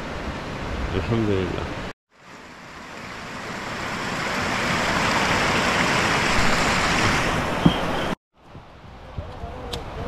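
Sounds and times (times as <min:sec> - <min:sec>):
waterfall rushing: 0:02.2 - 0:08.2.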